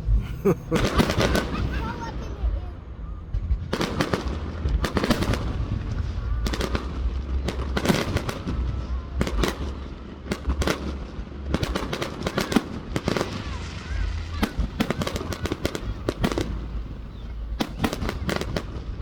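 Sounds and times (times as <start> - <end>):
steady low rumble: 0.0 - 11.5
fireworks bangs and crackles: 0.0 - 19.0.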